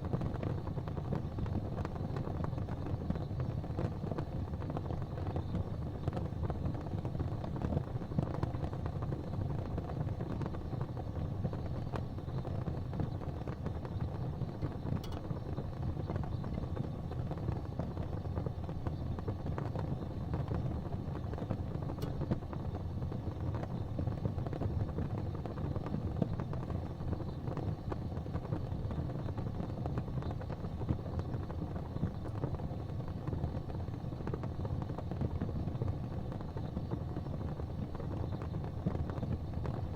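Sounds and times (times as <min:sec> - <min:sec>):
gas flames rumbling: 0:00.0 - 0:39.9
faint ticks: 0:14.6 - 0:15.4, 0:21.4 - 0:22.6.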